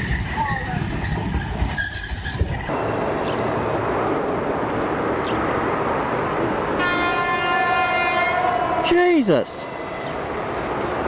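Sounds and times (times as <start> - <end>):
train rumbling along tracks: 0.0 - 11.0
vehicle engine noise: 2.7 - 6.8.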